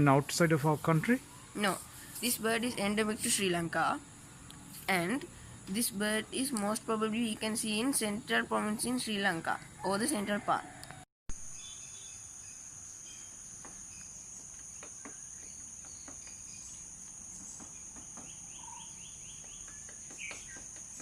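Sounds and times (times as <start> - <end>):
faint bird chirps: 11.4 - 21.0.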